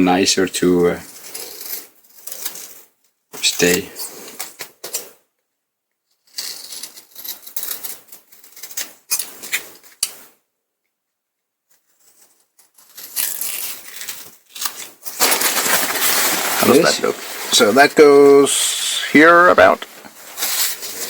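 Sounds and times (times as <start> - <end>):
thin sheet crinkling: 11.7 - 21.0.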